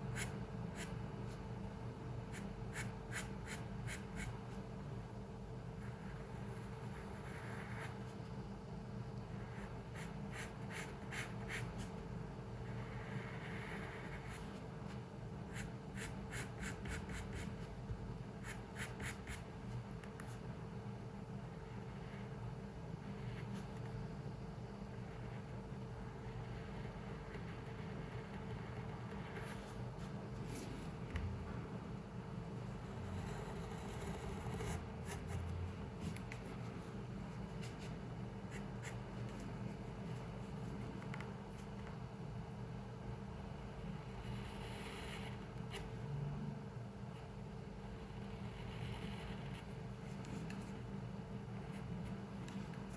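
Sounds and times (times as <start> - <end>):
steady low hum: 0.0 - 52.9
pencil scratching on paper: 2.3 - 4.5, 5.8 - 8.2, 9.4 - 12.0, 12.6 - 17.7, 18.4 - 20.4, 26.2 - 29.8, 32.7 - 39.6, 44.0 - 45.9, 48.0 - 50.8
drawing tool scratching on paper: 12.6 - 14.6, 32.8 - 35.4, 44.1 - 45.9, 48.0 - 50.8.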